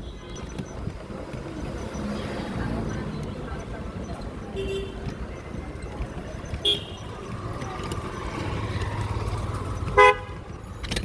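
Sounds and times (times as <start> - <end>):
vehicle engine rumble: 0.0 - 11.0
car horn toots: 4.6 - 5.2, 6.5 - 7.2, 9.8 - 10.5.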